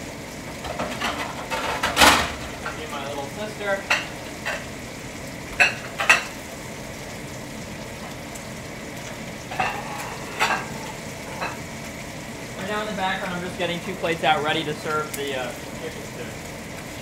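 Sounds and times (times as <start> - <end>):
chicken sizzling in a pan: 0.0 - 17.0
plates clinking: 5.6 - 6.4, 9.5 - 11.6.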